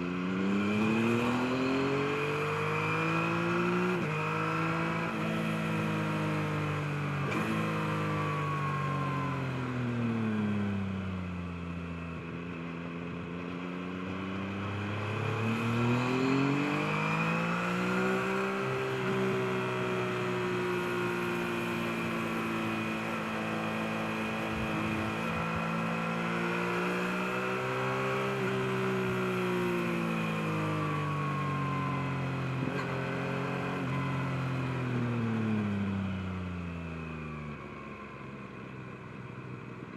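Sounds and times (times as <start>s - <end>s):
motorcycle engine revving: 0.0s - 8.3s, 14.2s - 31.9s.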